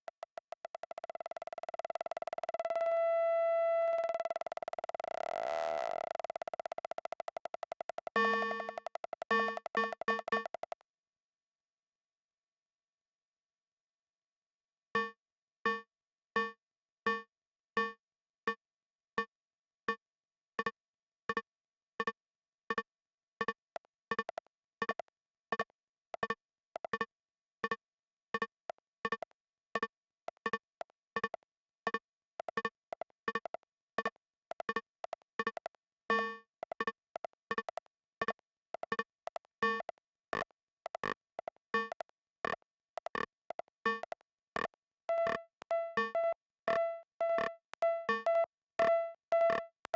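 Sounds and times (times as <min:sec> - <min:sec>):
synthesizer plucked notes: 0:43.9 - 0:49.9.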